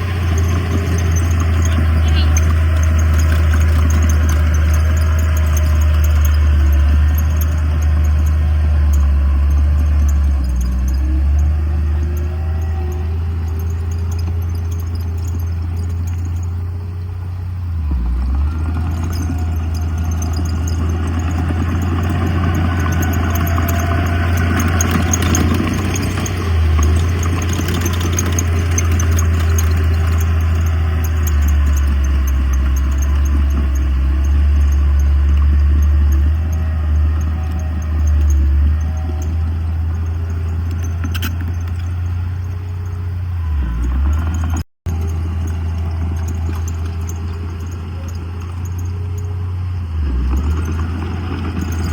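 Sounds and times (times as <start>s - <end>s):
clattering grinding noise: 0.0s - 51.9s
fine rattling: 0.0s - 51.9s
heavy diesel machinery droning: 0.0s - 51.9s.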